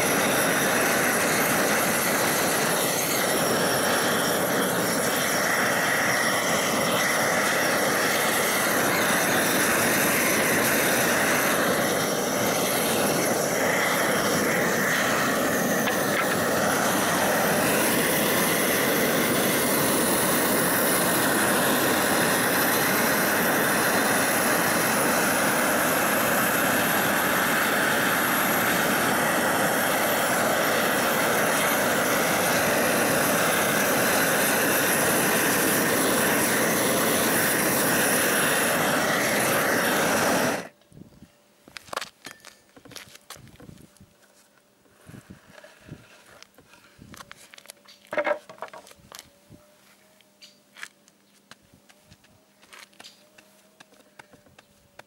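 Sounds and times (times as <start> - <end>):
propane torch roaring: 0.0 - 40.8.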